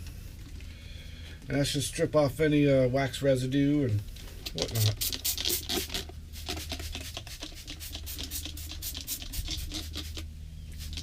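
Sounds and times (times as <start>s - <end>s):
steady low hum: 0.0s - 11.0s
rag rubbing and scratching: 4.4s - 11.0s.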